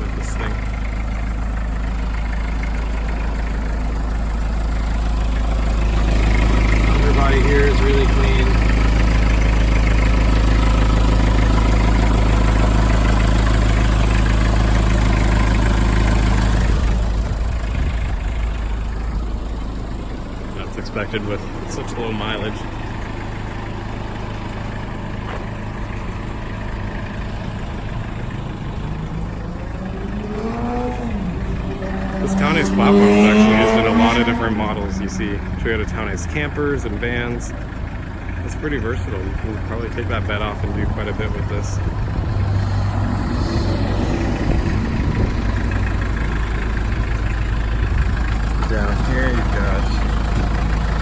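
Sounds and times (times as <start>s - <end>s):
diesel engine idling: 0.0s - 51.0s.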